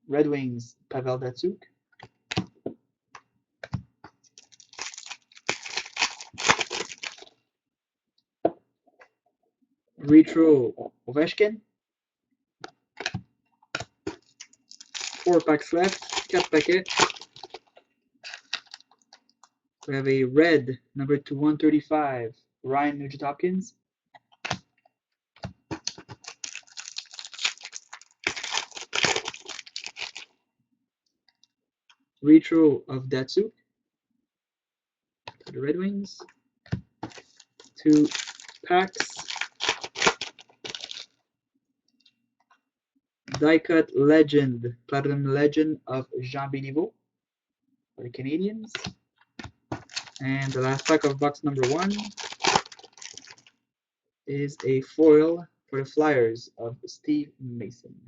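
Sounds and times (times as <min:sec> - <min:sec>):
wrapper tearing and crinkling: 0:04.4 - 0:07.3, 0:14.2 - 0:17.6, 0:18.2 - 0:19.0, 0:25.8 - 0:30.3, 0:37.1 - 0:41.1, 0:49.8 - 0:53.5.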